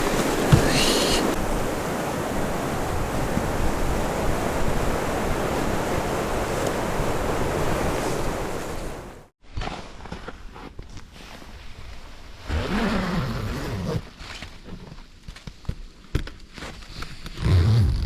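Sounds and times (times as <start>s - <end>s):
blizzard wind buffeting tent: 0.0s - 9.3s.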